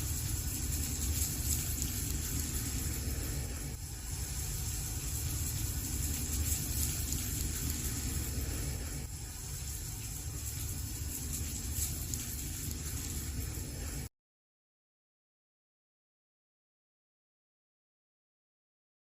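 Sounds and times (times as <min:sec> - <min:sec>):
fire crackles: 0:00.0 - 0:14.1
wood fire rumbling and hissing: 0:00.0 - 0:14.1.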